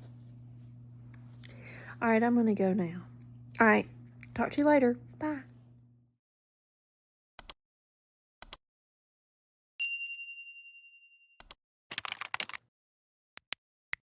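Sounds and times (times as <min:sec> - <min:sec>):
bright metallic ding: 0:09.8 - 0:11.2.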